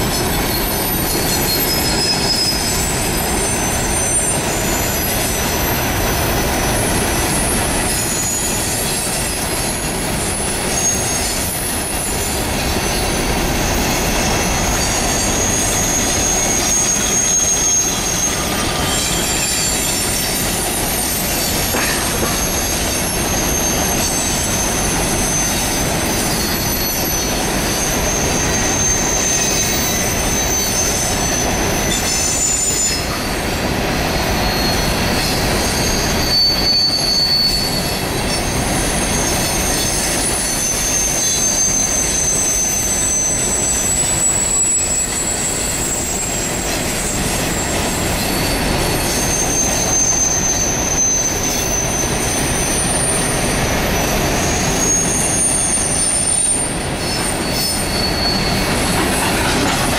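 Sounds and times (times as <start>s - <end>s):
high-pitched wheel squeals: 0.0s - 59.9s
train wheels rumbling on rail: 0.0s - 59.9s.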